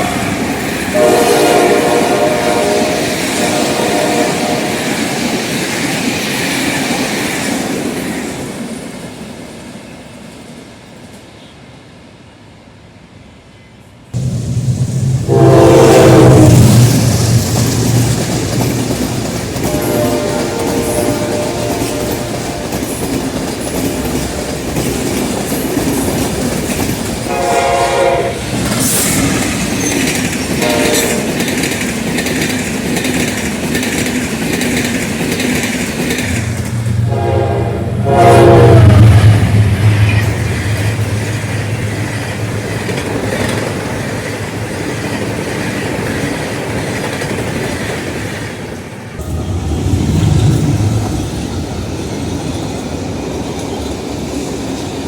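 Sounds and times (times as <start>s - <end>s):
locomotive horn: 0.0s - 5.0s, 15.3s - 16.8s, 19.6s - 23.0s, 27.3s - 28.5s, 30.6s - 31.4s, 36.9s - 41.1s
locomotive engine rumble: 36.3s - 42.9s, 49.2s - 53.1s.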